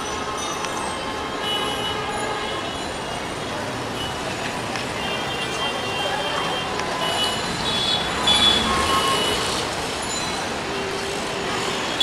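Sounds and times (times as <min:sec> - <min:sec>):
train coaches rolling on track: 0:02.8 - 0:12.0.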